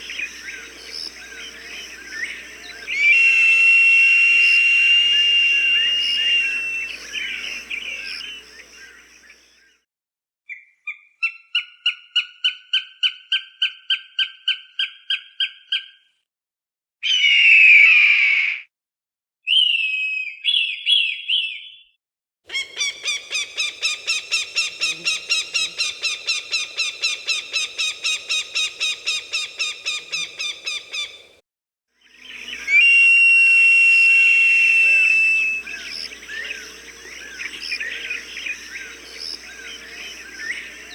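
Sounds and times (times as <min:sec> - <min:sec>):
falcon harsh scream: 0:02.9 - 0:07.4, 0:32.7 - 0:35.8
falcon kek calls: 0:22.5 - 0:31.2.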